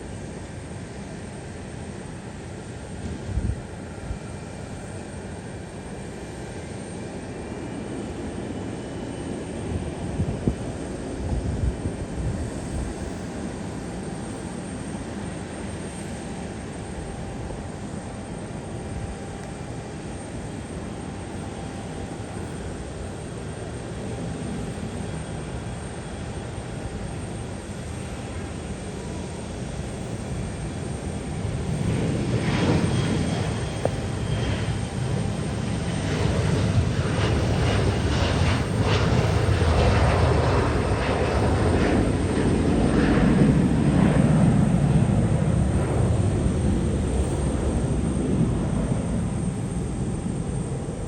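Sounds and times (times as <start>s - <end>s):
airliner engines rumbling: 0.0s - 51.0s
faint steady whine: 0.0s - 51.0s
wind buffeting microphone: 9.6s - 13.5s.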